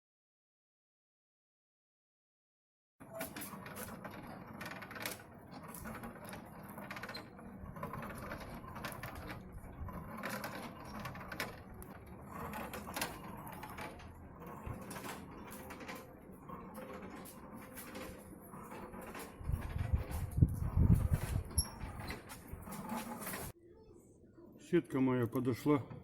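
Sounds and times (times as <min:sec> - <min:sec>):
metallic clicking and clanking mechanism: 0:03.0 - 0:23.5.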